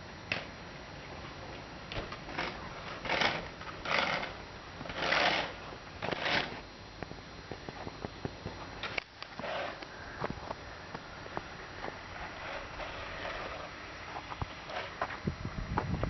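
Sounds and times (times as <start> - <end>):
footsteps crunching in snow: 9.4 - 15.2.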